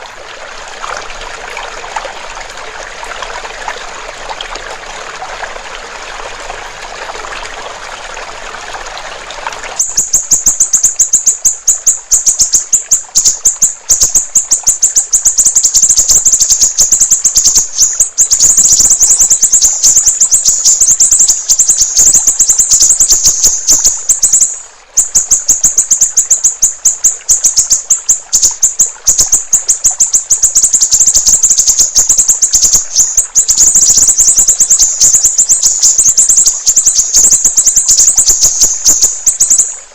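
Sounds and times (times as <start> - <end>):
trickling water: 0.0 - 39.9
bird's high chattering trill: 9.8 - 39.8.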